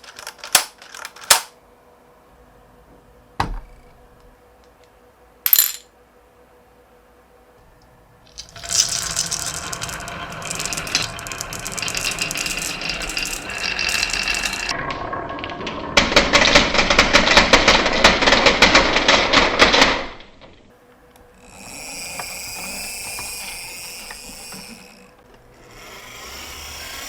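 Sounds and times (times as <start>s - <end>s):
marbles clattering in rapid clicks: 8.3s - 20.1s
marbles rolling and rattling on track: 8.3s - 20.2s, 21.5s - 25.1s.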